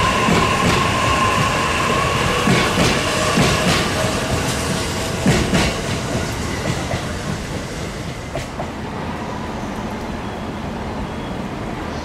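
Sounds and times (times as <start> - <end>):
train wheels clattering over rail joints: 2.4 - 8.8.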